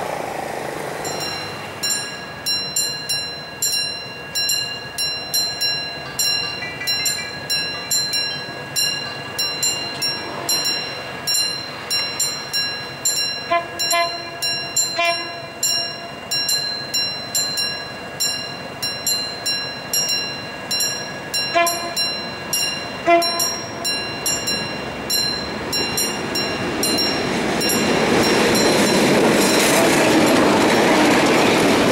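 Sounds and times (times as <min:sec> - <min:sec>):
level crossing bell ringing: 0:01.0 - 0:30.5
train horn blasts: 0:10.1 - 0:10.7, 0:13.4 - 0:15.8, 0:21.5 - 0:22.1, 0:23.0 - 0:24.0.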